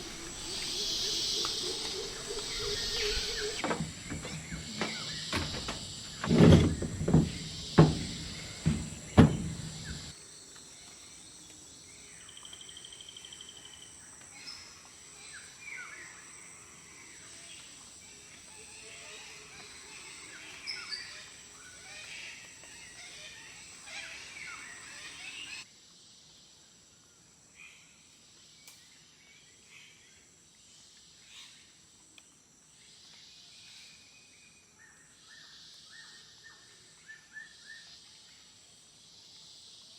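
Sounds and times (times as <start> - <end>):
birds calling and chirping: 0.0 - 10.2
insects: 0.0 - 39.9.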